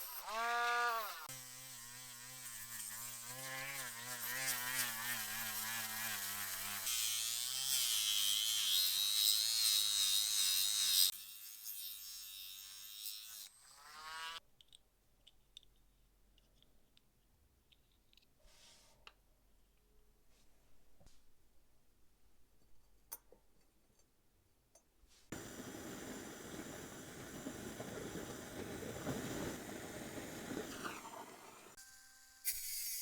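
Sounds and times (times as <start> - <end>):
small electric tool motor running: 0.0 - 14.4, 25.3 - 33.0.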